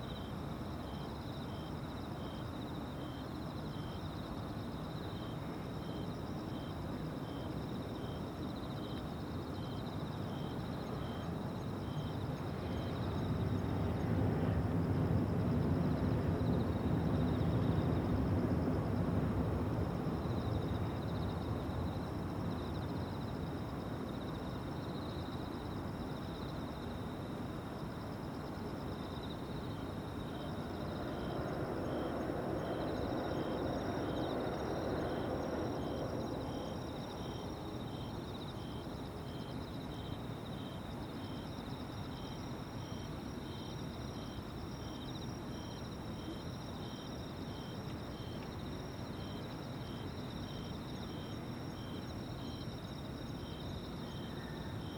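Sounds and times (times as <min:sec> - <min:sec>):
insect chirping: 0:00.0 - 0:14.2, 0:19.7 - 0:54.9
insects trilling: 0:20.2 - 0:54.9.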